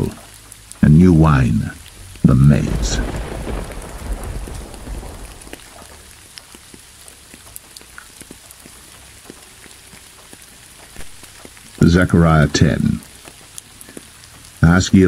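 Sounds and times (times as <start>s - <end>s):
rain falling: 0.0s - 15.0s
sharp raindrop ticks: 0.0s - 15.0s
thunder rumble: 0.8s - 6.3s.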